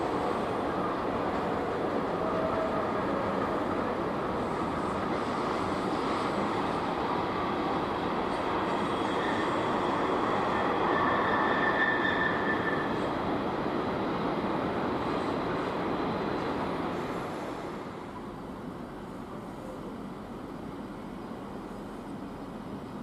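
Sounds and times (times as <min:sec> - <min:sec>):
freight train rumbling past: 0:00.0 - 0:23.0
high wheel squeal: 0:08.7 - 0:13.1.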